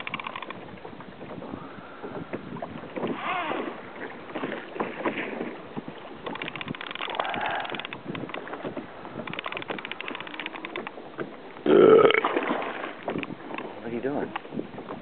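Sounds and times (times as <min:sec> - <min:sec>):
water splashing and sloshing: 0:00.0 - 0:15.0
wind on microphone: 0:00.0 - 0:15.0
rapid clicking: 0:09.2 - 0:10.9.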